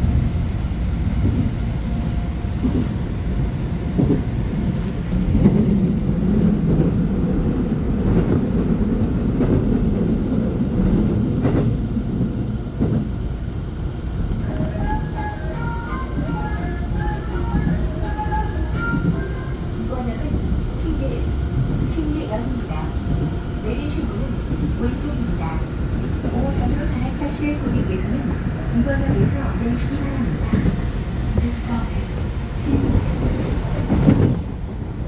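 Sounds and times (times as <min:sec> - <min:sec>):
train rumbling on rails: 0:00.0 - 0:35.0.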